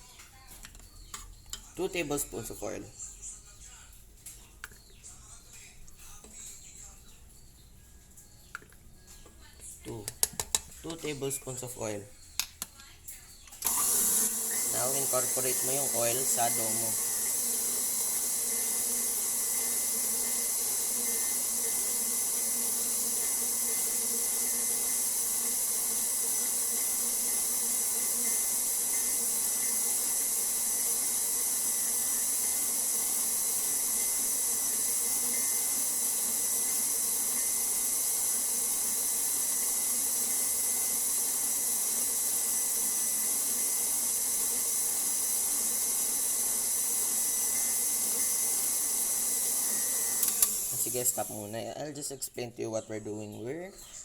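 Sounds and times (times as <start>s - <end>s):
electric mixer motor humming: 13.6s - 51.5s.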